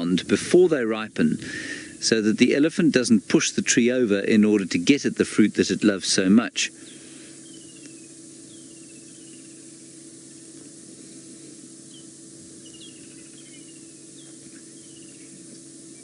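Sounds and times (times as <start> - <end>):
faint low hum: 0.0 - 16.0
steady hiss: 0.0 - 16.0
small bird calling: 6.7 - 16.0.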